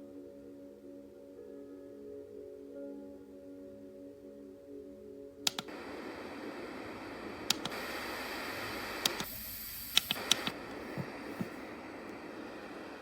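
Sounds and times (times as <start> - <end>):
white noise hiss: 5.5 - 13.0.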